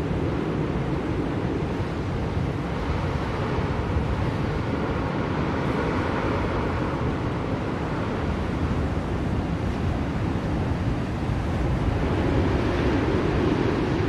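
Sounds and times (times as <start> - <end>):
blizzard wind rushing: 0.0 - 14.0.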